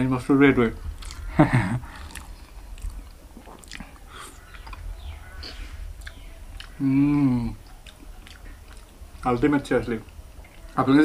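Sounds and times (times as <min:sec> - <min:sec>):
person chewing food: 0:00.9 - 0:09.0.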